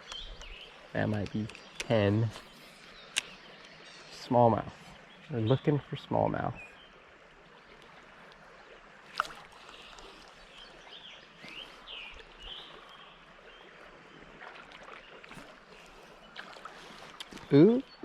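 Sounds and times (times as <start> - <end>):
faint wash of moving water: 7.2 - 17.4.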